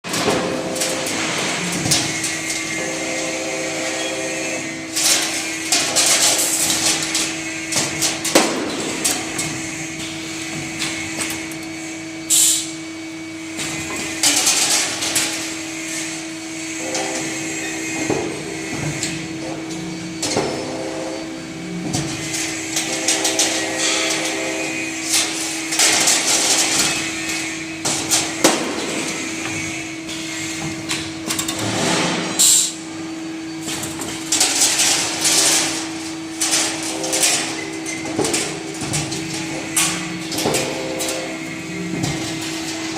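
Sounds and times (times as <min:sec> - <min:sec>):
machine humming: 0:00.0 - 0:42.9
machine clanks and knocks: 0:04.9 - 0:11.6, 0:27.8 - 0:32.8, 0:33.6 - 0:42.9.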